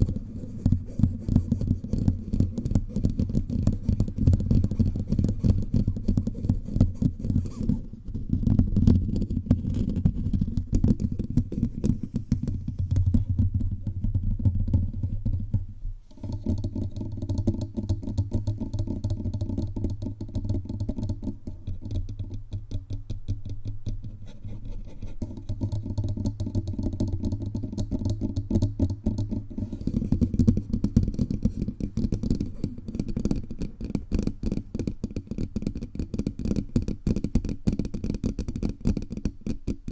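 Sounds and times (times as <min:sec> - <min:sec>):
fingertips tapping a microphone: 0:00.0 - 0:39.9.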